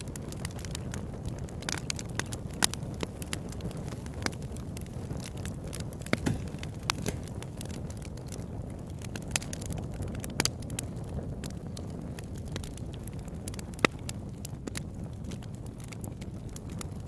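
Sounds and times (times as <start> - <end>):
fire crackles and pops: 0.0 - 17.0
low rumble of flames: 0.0 - 17.0.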